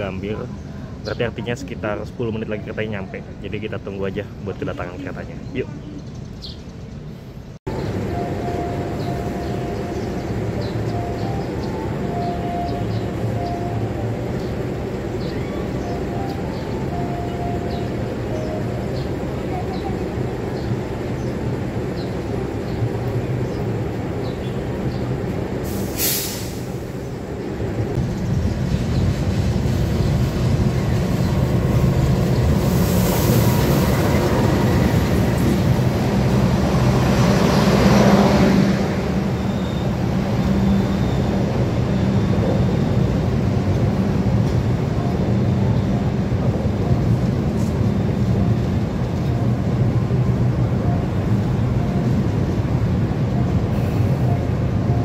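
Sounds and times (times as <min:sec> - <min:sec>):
train coaches rolling by: 0:00.0 - 0:55.0
locomotive engine humming: 0:07.0 - 0:55.0
brakes hissing: 0:24.7 - 0:28.3.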